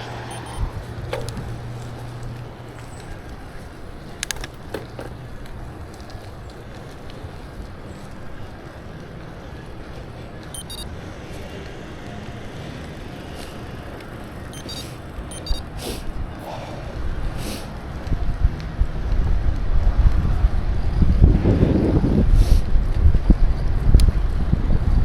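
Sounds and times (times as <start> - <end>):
bicycle ride rumble and hiss: 0.0 - 25.0
sharp clicks and rattles: 0.3 - 8.4, 10.4 - 10.9.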